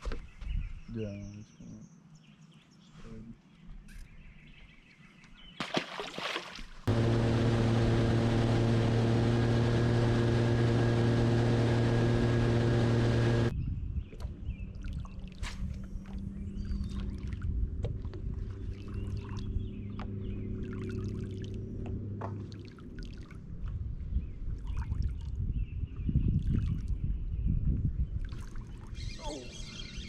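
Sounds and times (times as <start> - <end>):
boat motor rushing: 6.9 - 13.5
low hum: 6.9 - 13.5.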